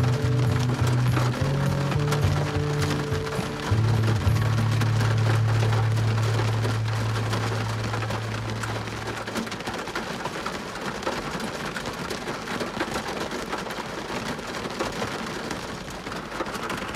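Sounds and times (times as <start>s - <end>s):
rain on car windshield and roof: 0.0s - 16.9s.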